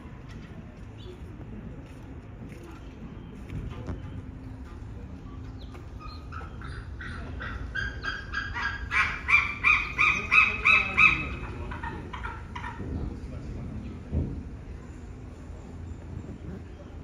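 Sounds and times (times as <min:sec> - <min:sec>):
bird honking calls: 0:06.0 - 0:12.8.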